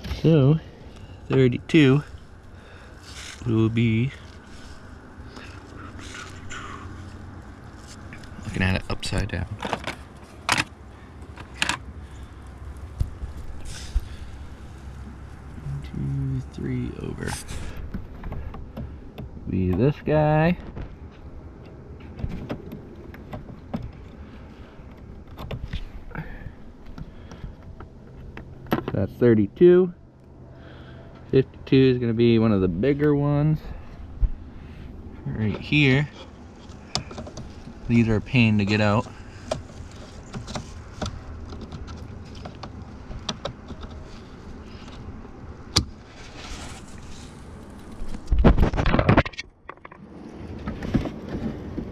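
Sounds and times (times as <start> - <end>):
diesel engine idling: 0.0 - 9.4, 10.0 - 19.7
low steady rumble: 0.0 - 48.9.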